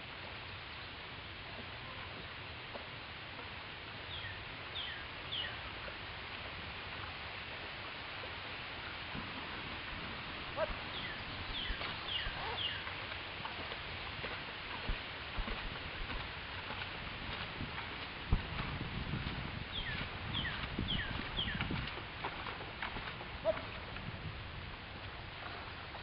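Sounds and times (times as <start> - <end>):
steady background hiss: 0.0 - 26.0
small bird chirping: 10.9 - 12.8, 19.7 - 21.6.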